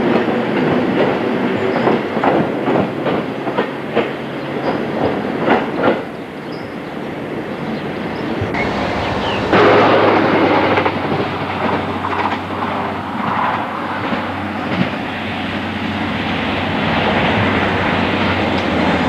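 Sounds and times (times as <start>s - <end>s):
train wheels clattering on rails: 0.0s - 19.0s.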